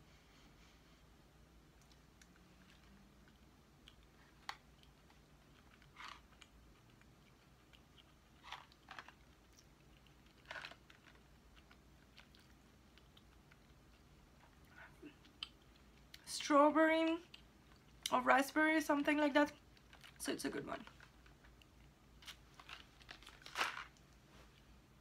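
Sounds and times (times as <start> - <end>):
soft mouth clicks chewing: 1.7 - 16.3, 17.2 - 18.1.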